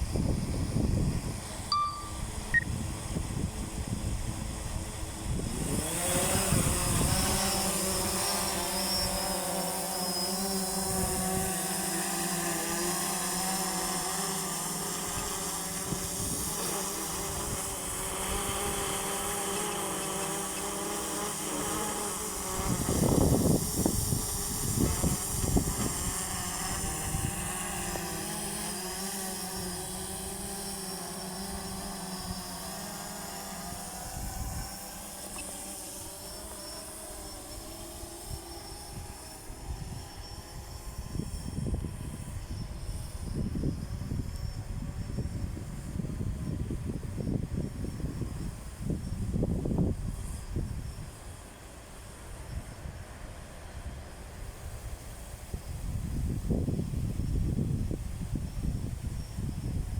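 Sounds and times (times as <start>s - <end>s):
wind buffeting microphone: 0.0s - 8.2s, 22.4s - 27.9s, 54.4s - 59.9s
drone propellers whining: 1.4s - 2.8s.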